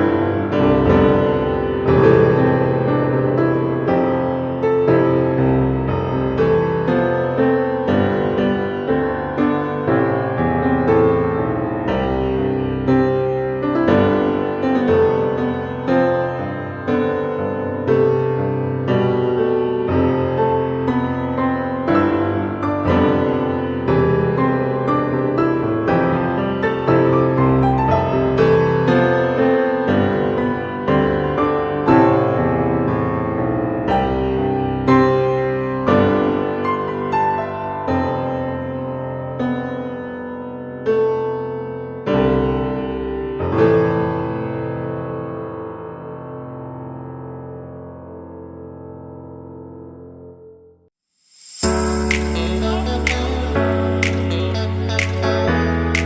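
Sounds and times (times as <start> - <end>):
piano playing: 0.0 - 50.7, 51.3 - 56.0.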